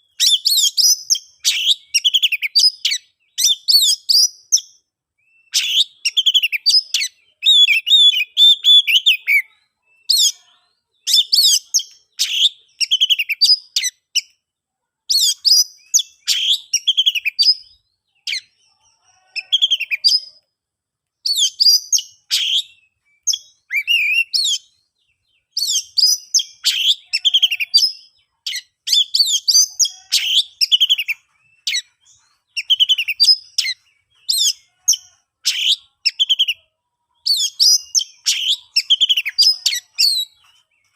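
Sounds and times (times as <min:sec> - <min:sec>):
bird singing whistles and chirps: 0:00.1 - 0:10.4, 0:11.0 - 0:14.3, 0:15.1 - 0:18.6, 0:21.2 - 0:40.9.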